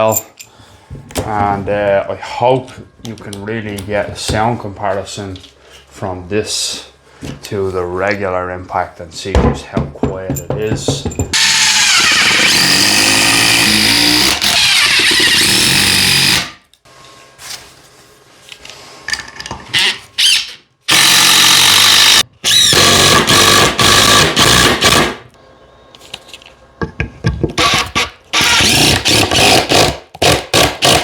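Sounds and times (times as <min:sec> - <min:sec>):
impact driver driving screws: 0:11.4 - 0:16.6, 0:19.8 - 0:25.2, 0:27.6 - 0:31.0.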